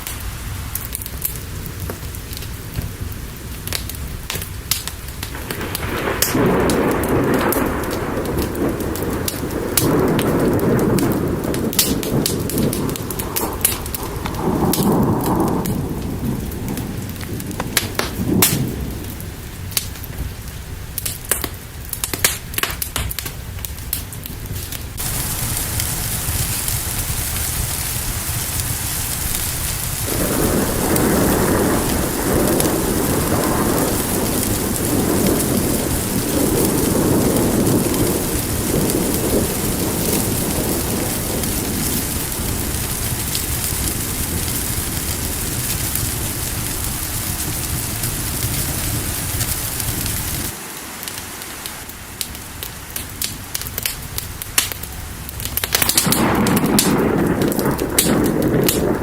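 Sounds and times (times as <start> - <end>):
rolling thunder: 0.0 - 50.6, 51.8 - 59.0
fire crackles: 0.0 - 59.0
heavy rain hiss: 0.0 - 59.0
low rumble: 23.5 - 50.6.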